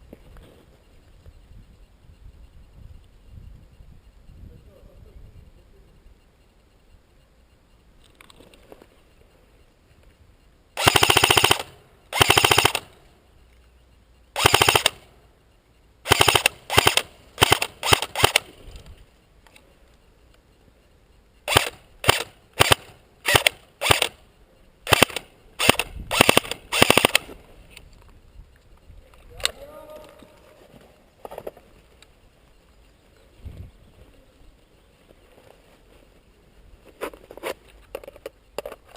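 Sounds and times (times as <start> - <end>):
airsoft gun full-auto bursts: 10.8 - 13.0, 14.4 - 15.1, 16.0 - 18.6, 21.4 - 24.2, 24.8 - 27.4.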